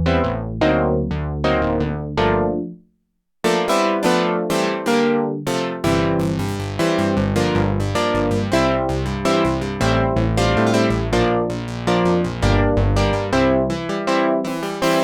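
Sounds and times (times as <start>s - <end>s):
synthesizer bass part: 0.0s - 2.7s, 5.8s - 13.9s
synthesizer chords: 0.0s - 2.8s, 3.5s - 15.0s.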